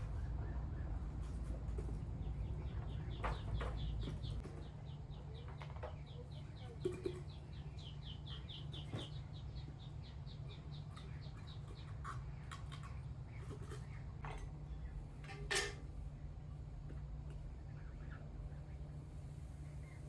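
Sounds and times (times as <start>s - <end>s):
chicks peeping: 0.1s - 14.0s.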